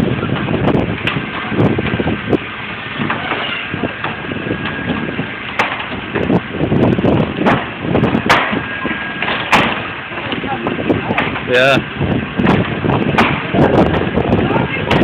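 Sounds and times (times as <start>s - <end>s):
steady background noise: 0.0s - 15.0s
wood cracking and splintering: 3.0s - 15.0s.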